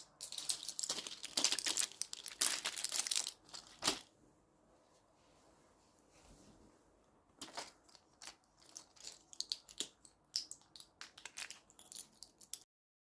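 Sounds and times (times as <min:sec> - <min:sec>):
crinkly material crackling: 0:00.0 - 0:04.1.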